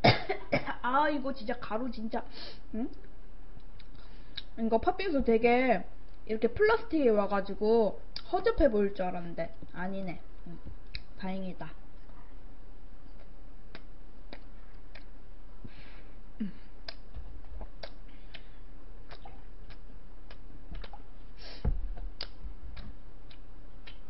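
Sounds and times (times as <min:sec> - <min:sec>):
steady low hum: 0:00.0 - 0:24.0
chewing bread with mouth clicks: 0:13.0 - 0:15.2, 0:16.8 - 0:21.2, 0:21.9 - 0:24.0
dull low thud: 0:21.6 - 0:22.6.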